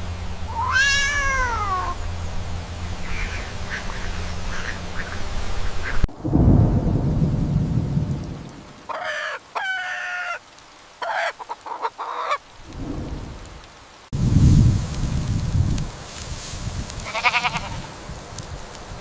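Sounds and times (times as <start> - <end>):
rooster crowing and clucking: 0.4 - 2.0, 8.9 - 10.4
low rumble: 1.6 - 8.8, 12.6 - 17.0.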